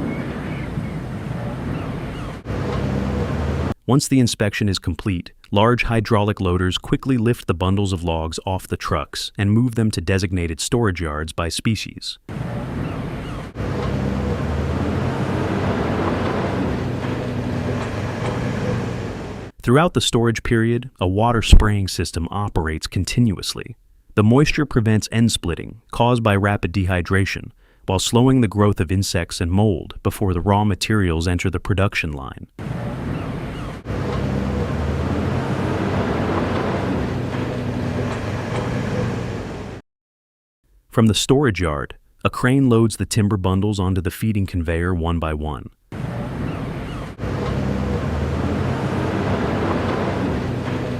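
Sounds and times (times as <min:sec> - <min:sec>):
diesel engine droning: 0:00.0 - 0:03.8, 0:12.3 - 0:19.5, 0:32.6 - 0:39.8, 0:46.0 - 0:50.9.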